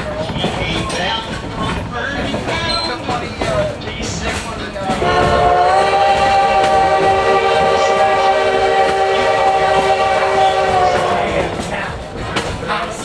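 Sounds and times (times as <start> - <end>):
locomotive steam whistle blast: 5.0 - 11.7.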